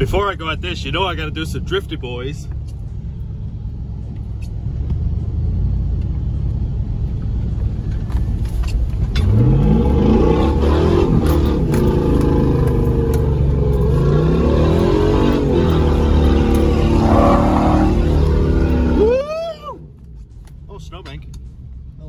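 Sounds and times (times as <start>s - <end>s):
car engine revving: 7.5s - 20.4s.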